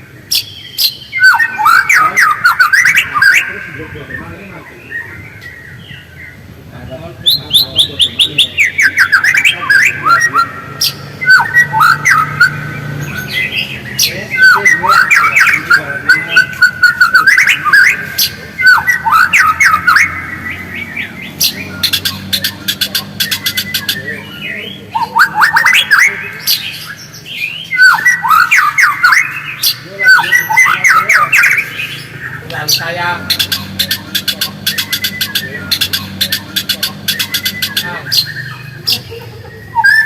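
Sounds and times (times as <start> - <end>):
bird singing whistled notes: 0.0 - 6.5, 7.1 - 40.0
sharp bird clicks: 21.4 - 24.1, 33.3 - 38.4.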